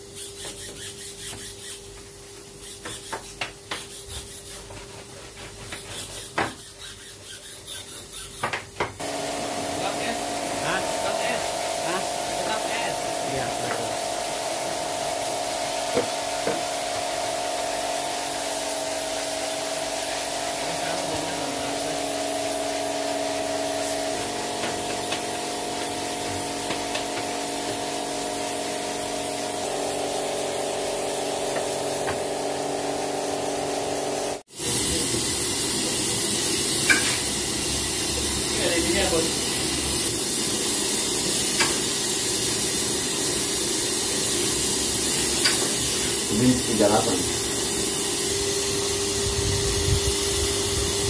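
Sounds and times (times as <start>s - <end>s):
pressurised gas hissing: 9.0s - 51.0s.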